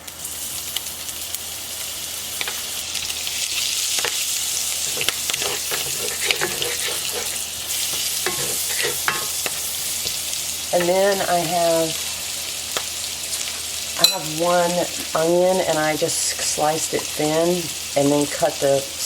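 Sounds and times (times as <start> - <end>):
butter sizzling in a skillet: 0.0 - 19.0
utensil scraping a pan: 4.8 - 9.8.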